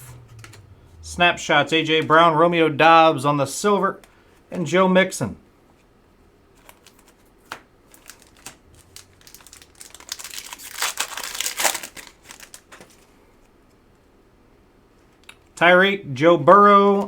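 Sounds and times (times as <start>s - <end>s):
plastic wrapper tearing and crinkling: 6.6s - 13.1s.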